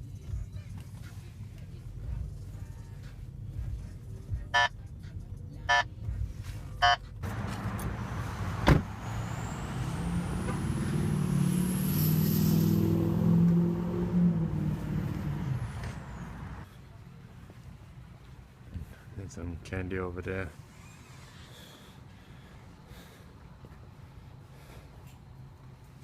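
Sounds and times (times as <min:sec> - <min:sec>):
car engine running and pulling: 0:07.1 - 0:16.6.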